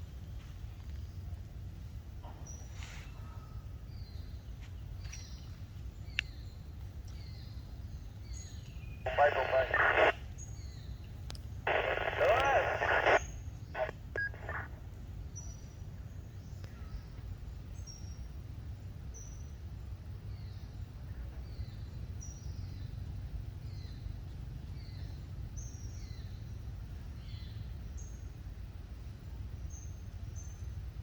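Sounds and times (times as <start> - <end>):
birds chirping: 5.0 - 15.7.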